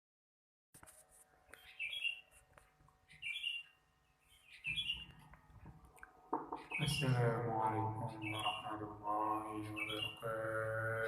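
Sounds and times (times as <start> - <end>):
bird chirping: 1.5 - 2.3, 3.0 - 5.3, 6.0 - 11.0.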